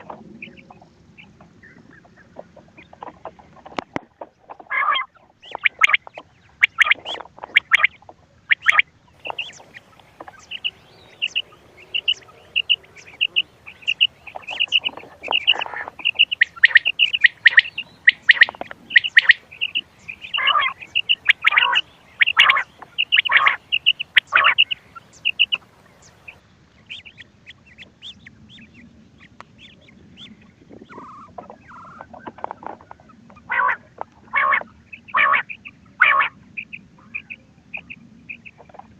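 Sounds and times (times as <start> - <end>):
quail high chirps: 4.5 - 38.9
harsh lower calls: 8.6 - 26.4.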